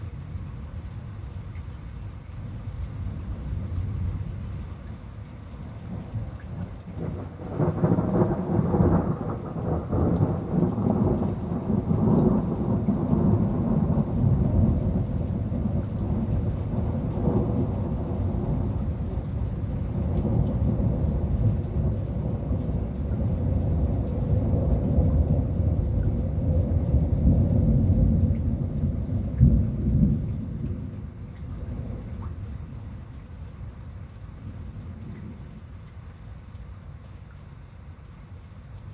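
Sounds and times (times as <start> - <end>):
rain falling: 0.0 - 38.9
rolling thunder: 5.8 - 33.2.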